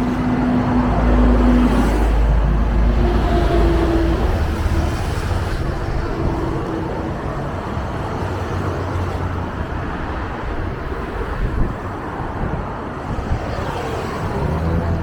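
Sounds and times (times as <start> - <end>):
bus engine rumble: 0.0 - 15.0
road and traffic noise: 0.0 - 15.0.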